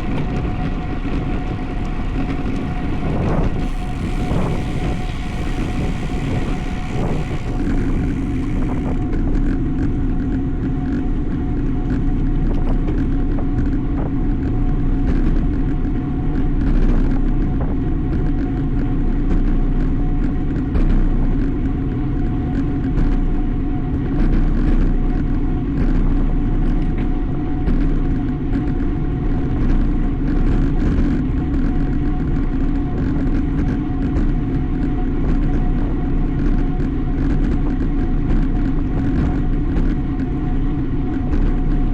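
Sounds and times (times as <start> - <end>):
faint steady whine: 0.0 - 15.7.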